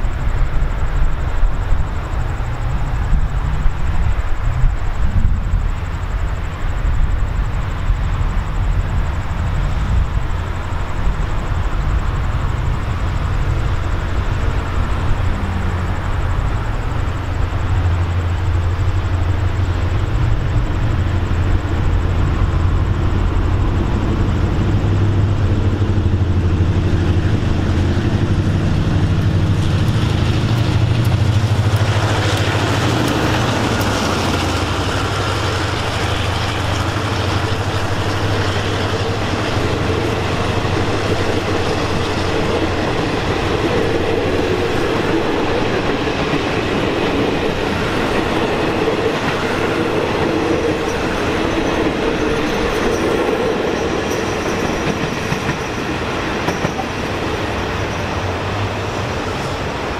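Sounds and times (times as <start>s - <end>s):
diesel locomotive engine drone: 0.0s - 59.9s
carriage wheels clattering on rails: 27.7s - 58.6s.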